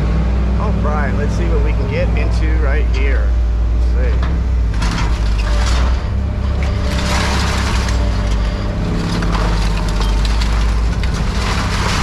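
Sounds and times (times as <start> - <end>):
machine engine running: 0.0 - 12.0
scrap crunching and grinding: 3.9 - 12.0.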